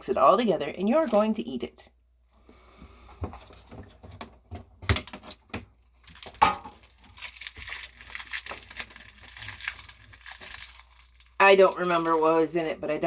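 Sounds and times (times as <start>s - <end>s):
plastic packaging crinkling: 4.8s - 12.8s.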